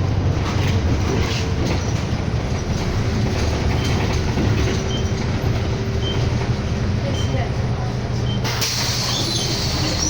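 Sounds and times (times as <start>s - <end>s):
bus engine and road rumble: 0.0s - 10.0s
rattles and clicks from bus body: 0.0s - 10.0s.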